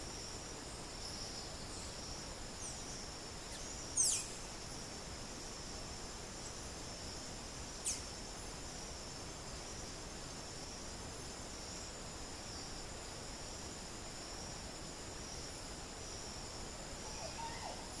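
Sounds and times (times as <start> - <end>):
background hiss: 0.0 - 18.0
high-pitched insect chorus: 0.0 - 18.0
faint bird call: 17.0 - 18.0.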